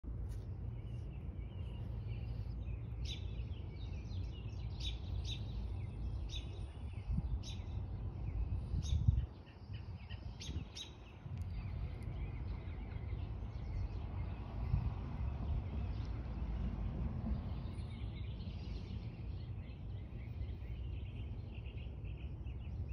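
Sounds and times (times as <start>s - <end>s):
steady low rumble: 0.0s - 22.9s
birds chirping: 0.1s - 22.9s.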